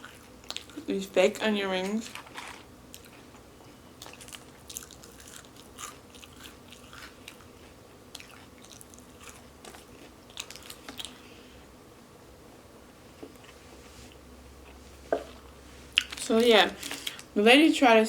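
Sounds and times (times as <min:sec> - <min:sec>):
wet chewing: 0:00.0 - 0:00.9, 0:02.0 - 0:11.3, 0:15.2 - 0:17.3
crunching fried food: 0:01.9 - 0:11.3.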